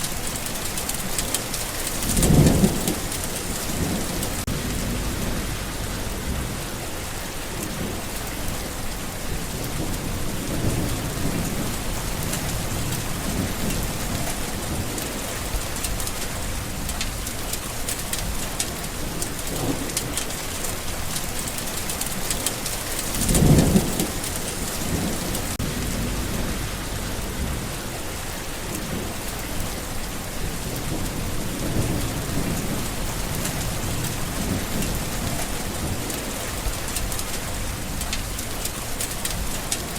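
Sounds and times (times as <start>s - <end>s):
heavy rain: 0.0s - 39.9s
rumbling thunder: 1.6s - 39.9s
sharp thunder crack: 2.0s - 6.8s, 23.1s - 28.1s.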